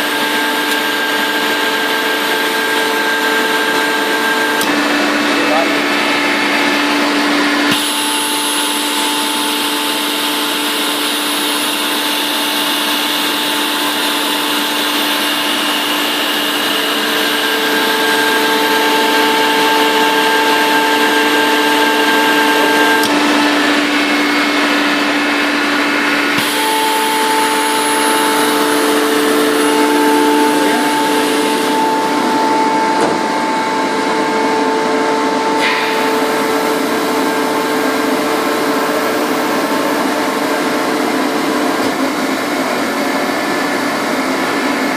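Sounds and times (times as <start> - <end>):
air compressor hiss and whine: 0.0 - 44.9.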